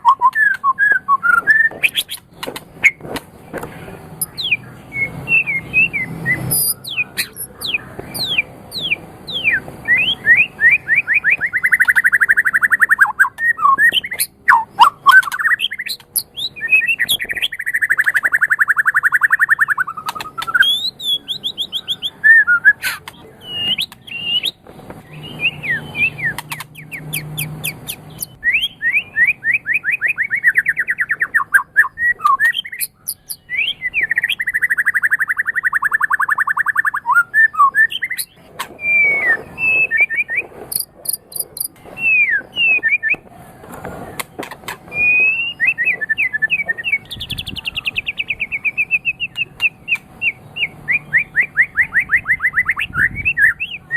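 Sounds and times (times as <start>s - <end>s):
songbird singing trills and whistles: 0.0s - 3.0s, 4.2s - 43.3s, 44.0s - 53.9s.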